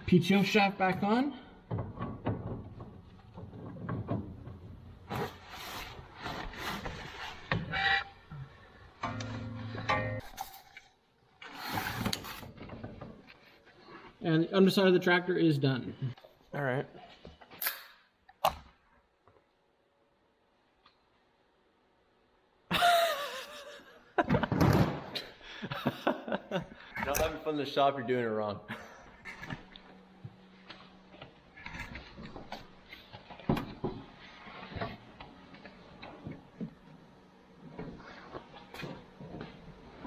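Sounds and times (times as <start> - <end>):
sharp metallic click: 17.6 - 18.6.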